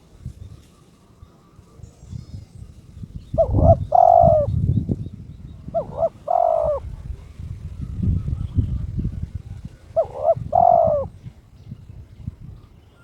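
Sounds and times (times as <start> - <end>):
dove cooing: 3.4 - 4.6, 5.7 - 6.9, 9.8 - 11.2.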